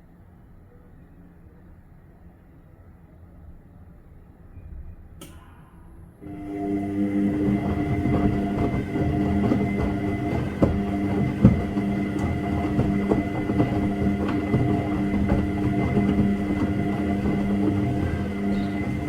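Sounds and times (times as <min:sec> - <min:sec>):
washing machine motor hum: 0:05.2 - 0:19.0
washing machine knocks: 0:06.7 - 0:19.0.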